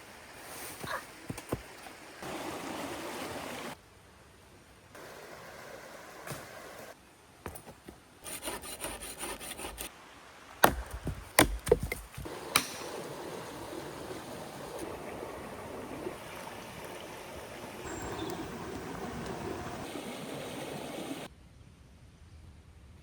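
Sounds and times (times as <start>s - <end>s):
river rushing: 2.2s - 3.8s, 12.3s - 21.3s
wood being sawn: 8.2s - 9.9s.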